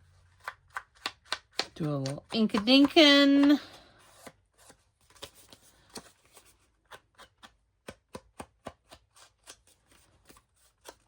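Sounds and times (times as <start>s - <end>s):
ink pad tapping on cardstock: 1.0s - 3.6s.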